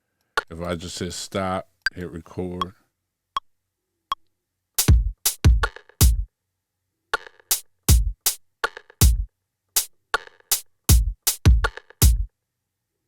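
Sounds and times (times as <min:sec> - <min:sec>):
electronic kick drums: 0:04.8 - 0:06.3, 0:07.9 - 0:08.3, 0:09.0 - 0:09.3, 0:10.9 - 0:12.3.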